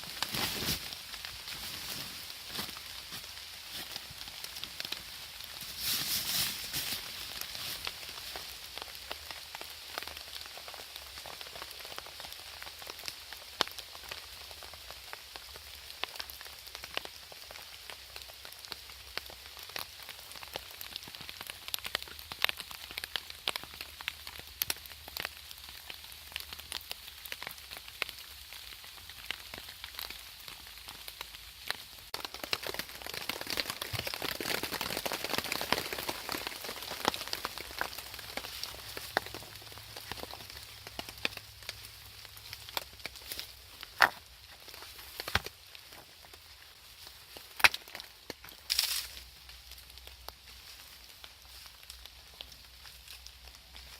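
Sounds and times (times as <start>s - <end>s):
steady rain: 0.0s - 53.9s
raindrops ticking: 7.2s - 53.9s.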